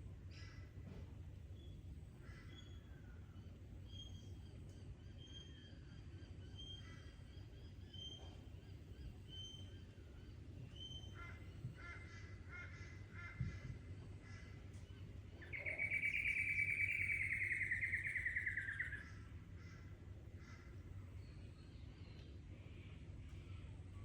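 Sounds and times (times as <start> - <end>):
bird whistled notes and chirps: 15.4 - 19.2
harsh drawn-out bird call: 15.4 - 20.6.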